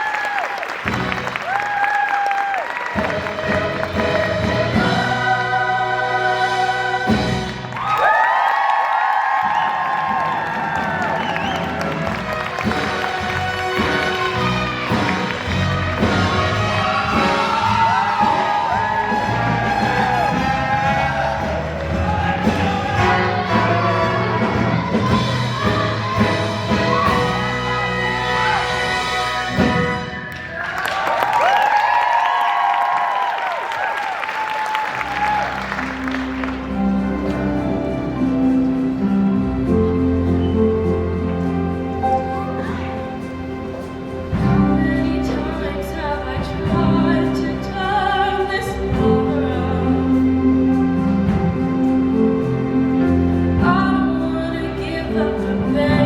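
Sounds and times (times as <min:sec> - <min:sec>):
band accompaniment: 0:00.0 - 0:32.8, 0:33.8 - 0:56.0
audience noise: 0:00.0 - 0:56.0
choir singing: 0:03.0 - 0:07.8, 0:11.4 - 0:29.8.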